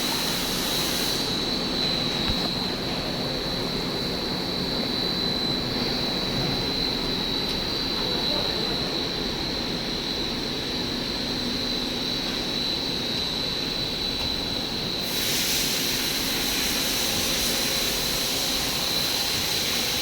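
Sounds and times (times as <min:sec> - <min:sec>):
high-pitched whine: 0:00.0 - 0:20.0
extrusion machine running: 0:13.2 - 0:20.0
loud hiss: 0:15.0 - 0:20.0.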